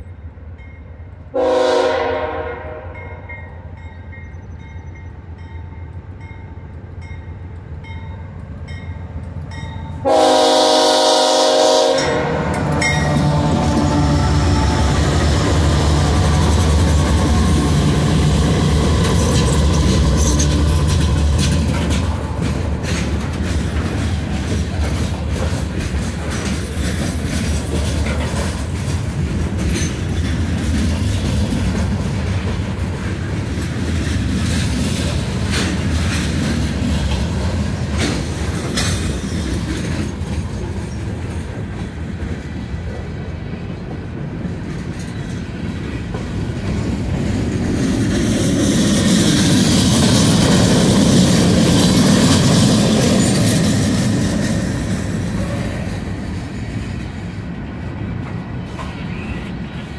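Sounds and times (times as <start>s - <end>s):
freight train rumbling past: 0.0s - 59.9s
wheels clicking over rail joints: 14.6s - 57.2s.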